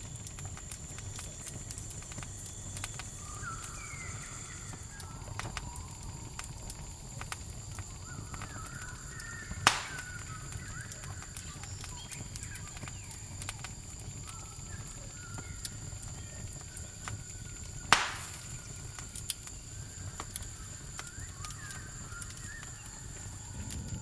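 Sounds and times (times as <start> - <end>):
campfire crackling and popping: 0.0 - 24.0
cricket trill: 0.0 - 24.0.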